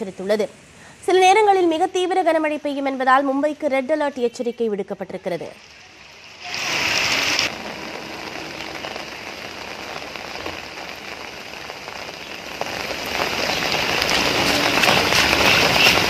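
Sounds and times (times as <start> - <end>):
heavy rain on standing water: 5.6 - 16.0.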